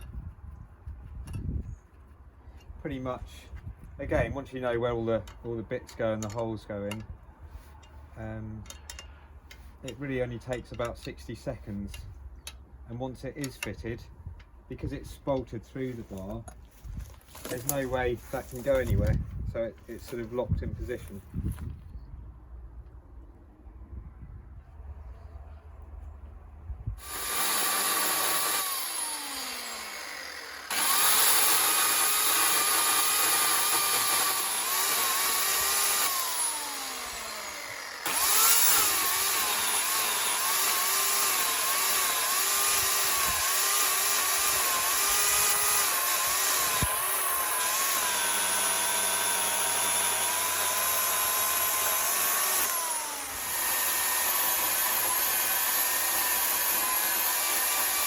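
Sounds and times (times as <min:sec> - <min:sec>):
electric chainsaw cutting wood: 0:27.0 - 0:58.0.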